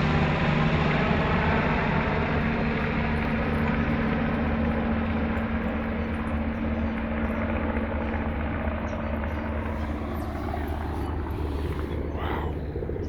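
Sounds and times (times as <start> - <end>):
helicopter engine and rotors: 0.0 - 13.0.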